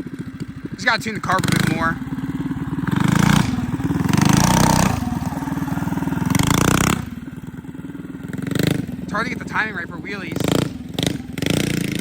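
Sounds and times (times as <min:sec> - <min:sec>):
mini bike engine revving: 0:00.0 - 0:12.0
person talking: 0:00.8 - 0:02.0, 0:09.1 - 0:10.4.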